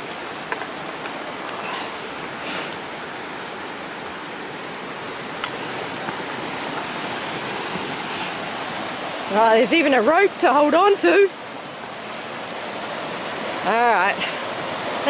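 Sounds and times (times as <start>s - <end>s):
fast-flowing river rushing: 0.0s - 15.0s.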